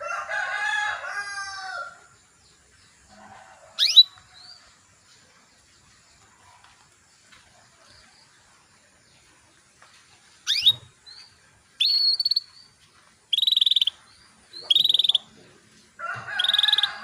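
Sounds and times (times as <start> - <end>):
canary calling: 3.8 - 4.2, 10.4 - 11.0, 11.8 - 12.5, 13.3 - 15.4, 16.4 - 17.0.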